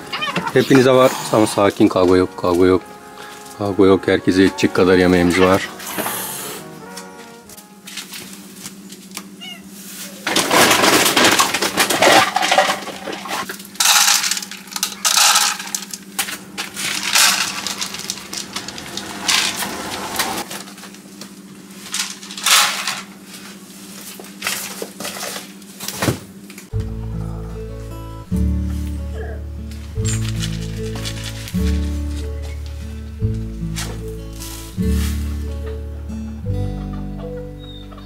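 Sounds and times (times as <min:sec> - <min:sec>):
dry animal feed rattling: 0:10.2 - 0:16.0, 0:16.6 - 0:20.4.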